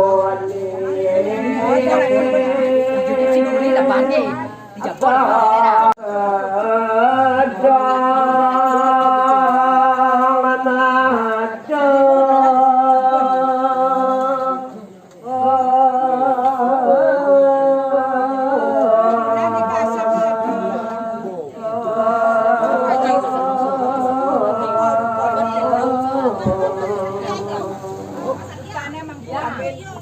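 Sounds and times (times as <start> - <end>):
person chanting in long notes: 0.0 - 28.5.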